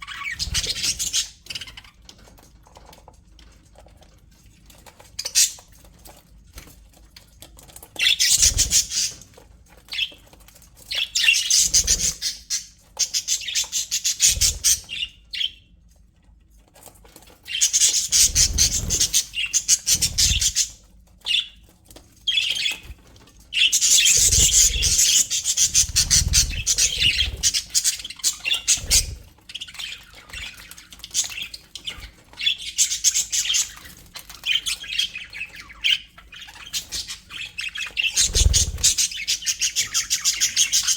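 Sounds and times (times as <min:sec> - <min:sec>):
budgerigars chattering and squawking: 0:00.0 - 0:02.1, 0:05.2 - 0:05.7, 0:07.9 - 0:09.3, 0:10.9 - 0:15.6, 0:17.5 - 0:21.6, 0:22.3 - 0:40.9.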